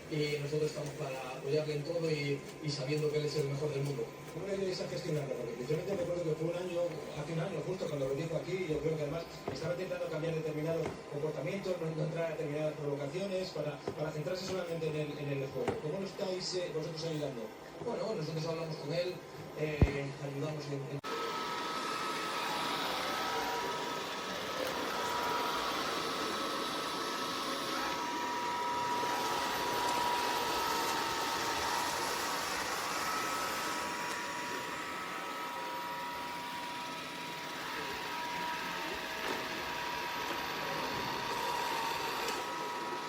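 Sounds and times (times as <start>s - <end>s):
robot vacuum motor whine: 21.0s - 43.0s.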